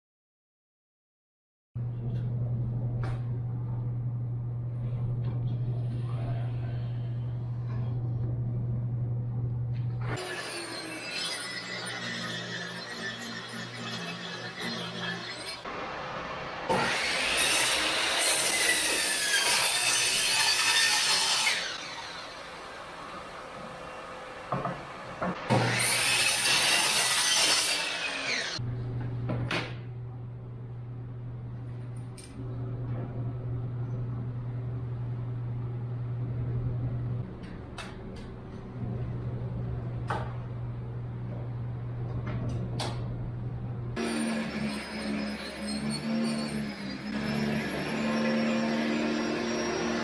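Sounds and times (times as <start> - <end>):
low hum: 1.8 - 10.2, 28.6 - 44.0.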